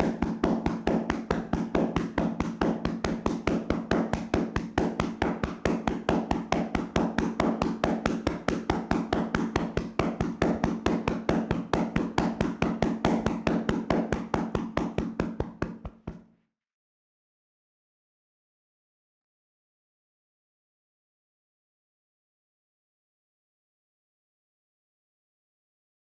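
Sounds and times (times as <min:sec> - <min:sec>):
hands slapping a body: 0:00.0 - 0:16.3.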